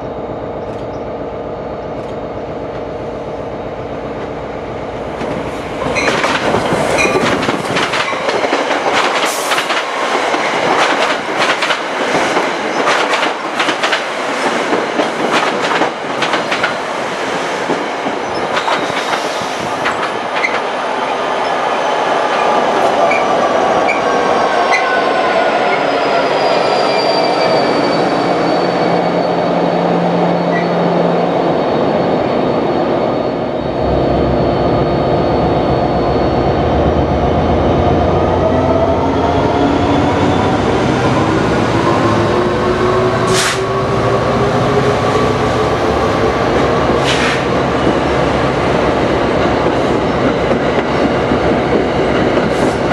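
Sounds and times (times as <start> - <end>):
train wheels clacking over rail joints: 5.9 - 16.8.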